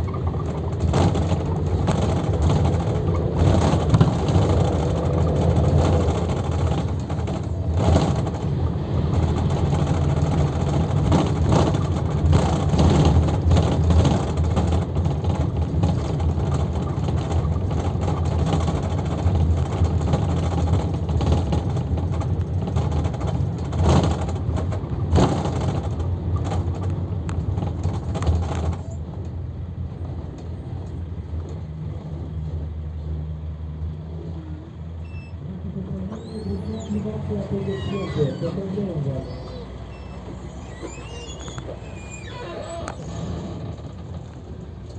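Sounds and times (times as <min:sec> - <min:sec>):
bus engine drone: 0:00.0 - 0:44.9
road noise: 0:00.0 - 0:44.9
rattles and knocks: 0:00.1 - 0:29.4.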